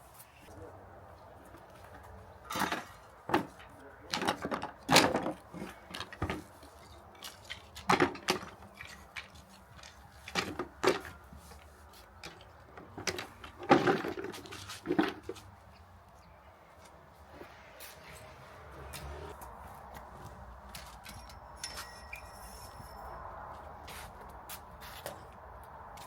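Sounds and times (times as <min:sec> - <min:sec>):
wooden pieces and tools clattering: 0:02.5 - 0:11.6, 0:12.2 - 0:15.5.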